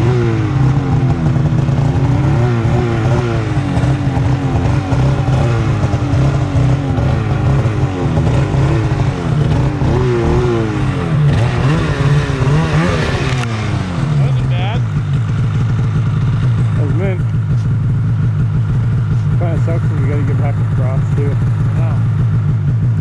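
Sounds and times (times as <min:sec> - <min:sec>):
snowmobile engine revving: 0:00.0 - 0:22.2.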